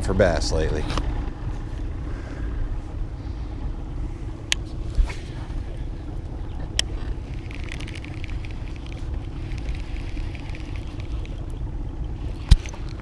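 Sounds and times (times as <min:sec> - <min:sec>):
boat motor running: 0:00.0 - 0:13.0.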